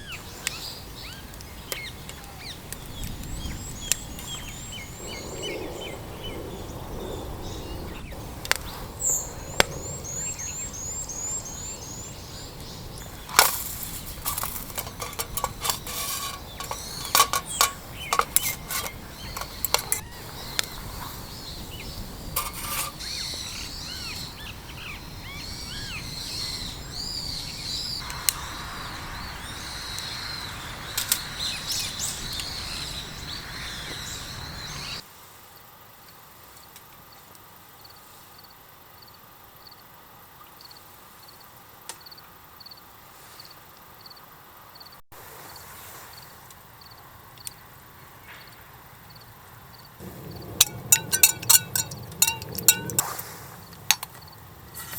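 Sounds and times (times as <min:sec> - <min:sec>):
small birds chirping: 0:00.0 - 0:35.0, 0:46.0 - 0:54.9
outdoor hiss: 0:00.0 - 0:54.9.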